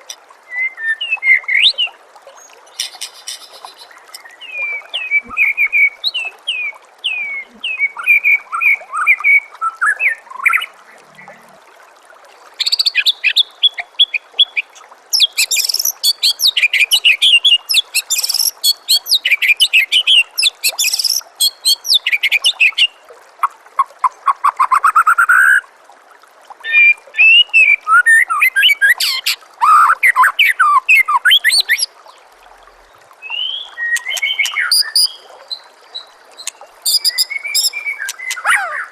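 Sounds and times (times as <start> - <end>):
trickle of running water: 0.0 - 38.9
bird singing whistled trills: 33.2 - 35.2, 36.8 - 38.9.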